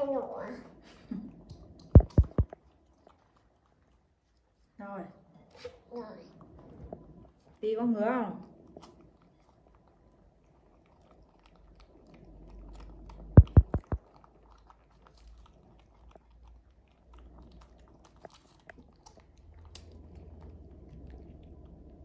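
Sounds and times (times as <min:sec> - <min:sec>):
chewing and mouth clicks: 0:01.0 - 0:04.8, 0:08.4 - 0:22.0
loud thumps: 0:02.0 - 0:02.5, 0:13.4 - 0:14.0.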